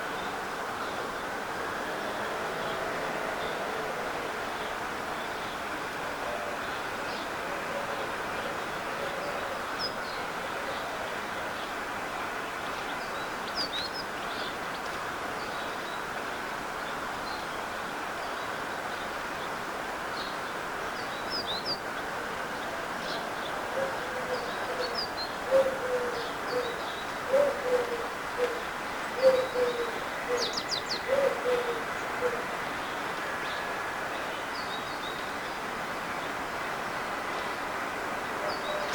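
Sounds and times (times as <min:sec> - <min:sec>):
pigeon cooing: 0:23.7 - 0:28.6, 0:29.2 - 0:32.5.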